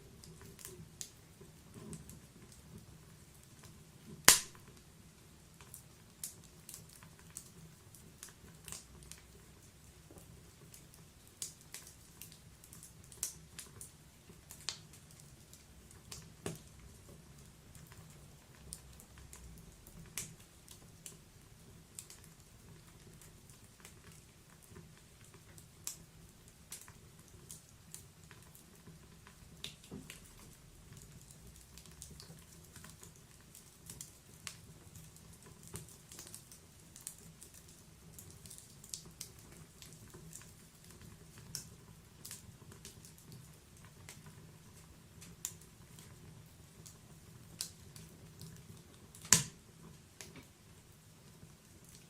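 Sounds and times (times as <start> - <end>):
wood fire crackling: 0.0 - 52.0
loud wood snap: 4.3 - 4.6, 49.2 - 49.6.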